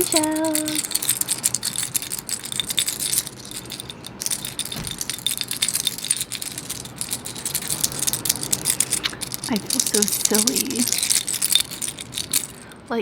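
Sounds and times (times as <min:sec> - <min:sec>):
seashells clinking: 0:00.0 - 0:12.8.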